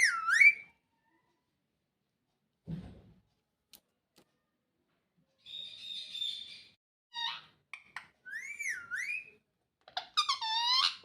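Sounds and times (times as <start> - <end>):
parrot whistling: 0.0 - 0.6, 8.2 - 9.4
parrot squawking: 0.0 - 0.7, 5.8 - 11.0.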